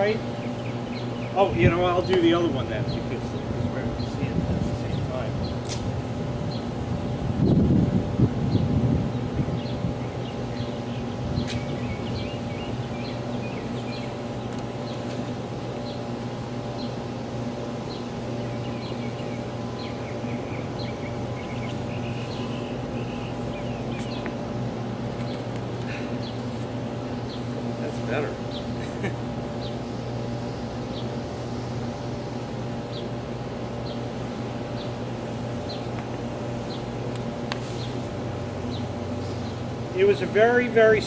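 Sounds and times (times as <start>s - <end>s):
steady mechanical hum: 0.0s - 41.0s
bird chirping: 0.2s - 4.2s, 8.5s - 17.1s, 17.7s - 24.5s, 25.2s - 28.8s, 29.5s - 31.2s, 31.9s - 37.0s.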